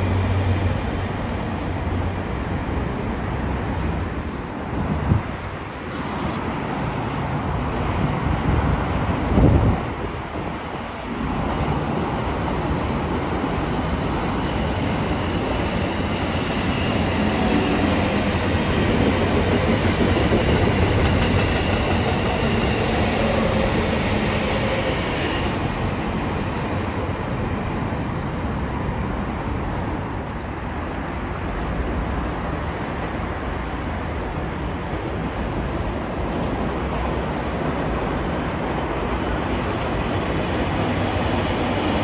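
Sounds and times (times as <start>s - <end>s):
train wheels rumbling on rail: 0.0s - 42.0s
high-pitched wheel squeal: 13.8s - 29.5s.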